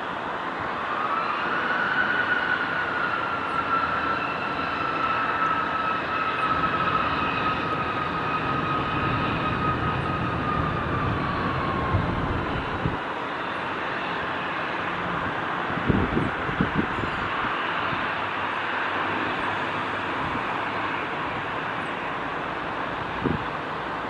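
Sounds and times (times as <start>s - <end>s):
jet engine whine: 0.0s - 24.0s.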